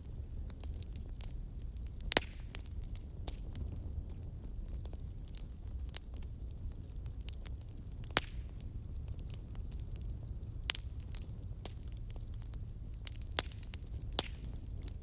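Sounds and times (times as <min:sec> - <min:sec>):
fire crackles and pops: 0:00.0 - 0:15.0
wood fire rumbling: 0:00.0 - 0:15.0.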